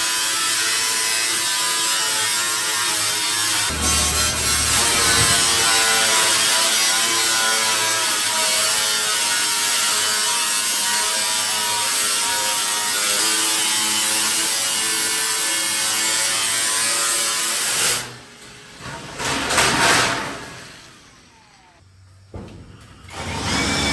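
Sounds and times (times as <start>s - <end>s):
power tool motor whine: 0.0s - 17.8s, 20.5s - 21.8s, 23.1s - 23.9s.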